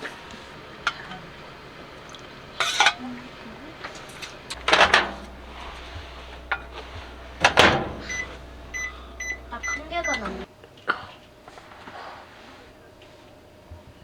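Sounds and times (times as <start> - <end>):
dishes and cutlery clattering: 0.0 - 10.4
low steady hum: 0.0 - 10.5.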